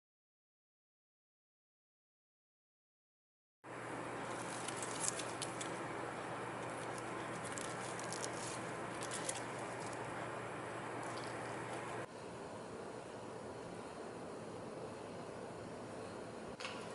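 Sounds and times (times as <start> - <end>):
machine hum and air noise: 3.6 - 16.9
crisp clicking and rustling: 4.3 - 5.8, 6.6 - 10.0.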